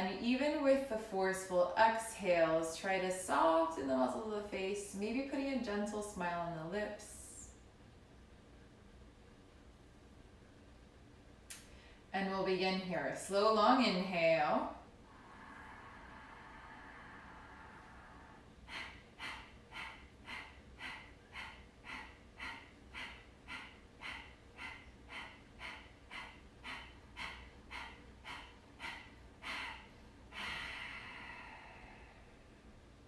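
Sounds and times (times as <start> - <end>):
slow inhale: 15.0 - 32.7.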